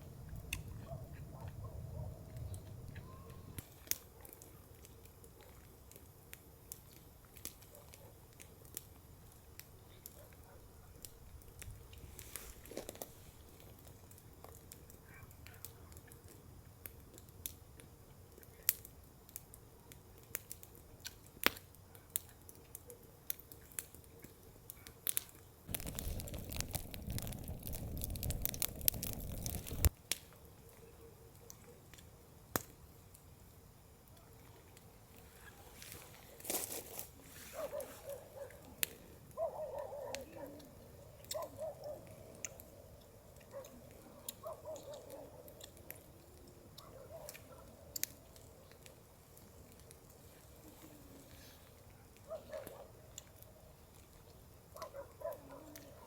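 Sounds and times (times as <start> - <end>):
sharp clicks and crackles: 11.0 - 30.3, 40.1 - 50.8
low rumbling noise: 25.7 - 29.9.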